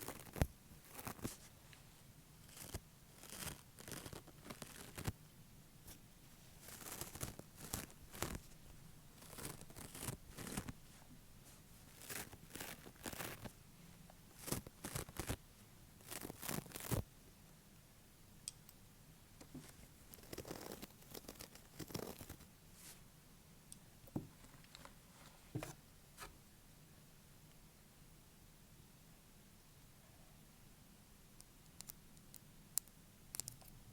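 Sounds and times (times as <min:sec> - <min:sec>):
fake nails tapping and scratching: 0:00.0 - 0:01.4, 0:02.5 - 0:05.1, 0:06.6 - 0:08.5, 0:09.2 - 0:10.8, 0:11.9 - 0:13.5, 0:14.4 - 0:15.4, 0:16.0 - 0:17.0, 0:19.4 - 0:22.4, 0:31.8 - 0:33.8.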